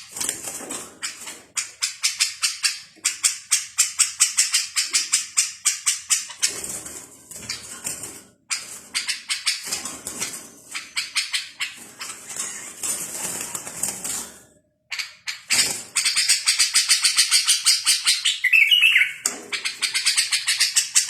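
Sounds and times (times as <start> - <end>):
small songbirds chirping: 16.0 - 21.0.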